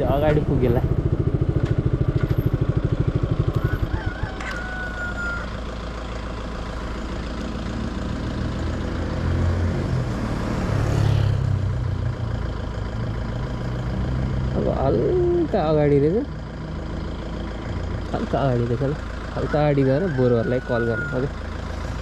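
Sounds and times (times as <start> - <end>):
motorcycle engine: 0.0 - 22.0
road noise: 0.0 - 22.0.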